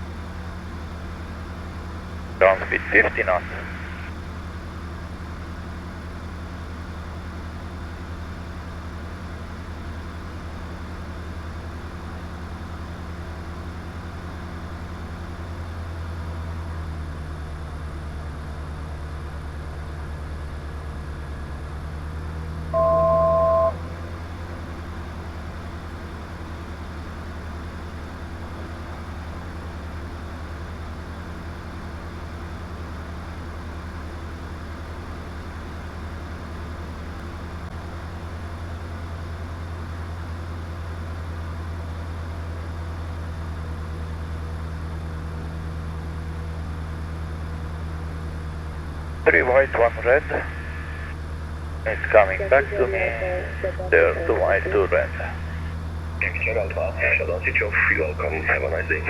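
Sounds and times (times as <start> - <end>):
aircraft engine drone: 0.1 - 10.4, 22.7 - 37.0, 47.7 - 59.0
electronic two-tone beep: 22.8 - 23.9.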